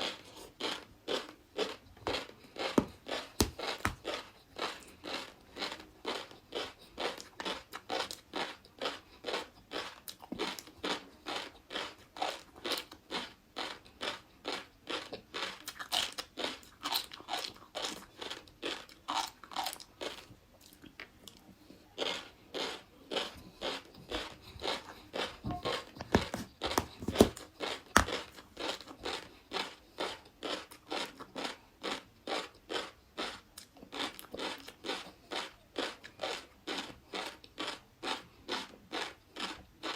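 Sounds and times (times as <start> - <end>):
crunchy chewing: 0.0 - 39.9.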